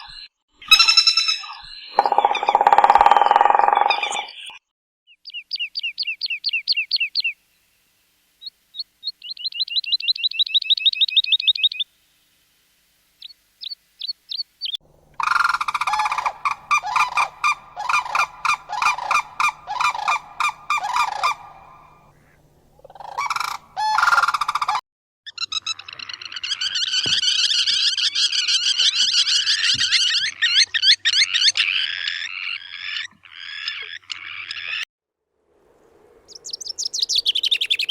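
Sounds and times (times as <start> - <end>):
bird trilling: 0.7 - 4.5, 15.2 - 24.8, 36.3 - 37.9
repeated low bird calls: 1.7 - 4.5, 14.9 - 24.8
faint steady hum: 14.8 - 24.6.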